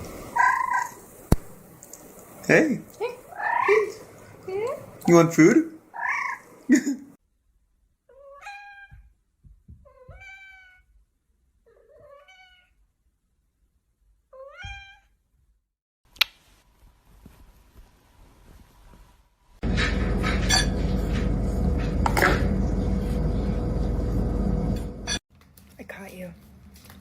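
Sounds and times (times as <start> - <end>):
cat meowing: 6.0 - 6.5, 8.1 - 9.1, 9.8 - 10.9, 11.7 - 12.8, 14.3 - 15.2.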